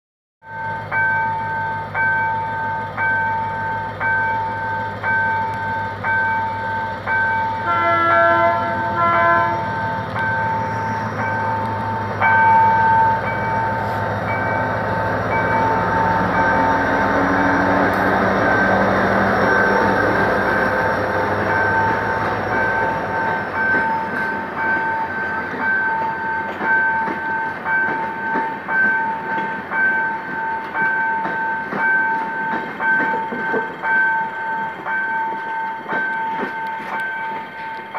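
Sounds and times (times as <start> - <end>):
diesel locomotive engine: 0.4 - 37.9
level-crossing warning bell: 0.4 - 37.9
coaches clattering over rails: 0.5 - 37.9
locomotive horn toot: 7.5 - 12.0.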